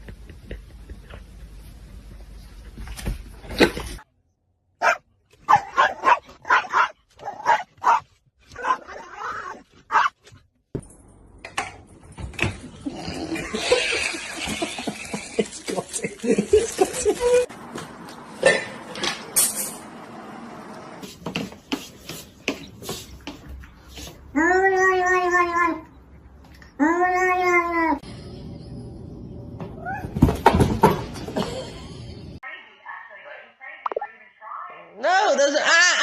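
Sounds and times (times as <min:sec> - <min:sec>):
dog barking: 0:04.8 - 0:09.0, 0:09.9 - 0:10.1.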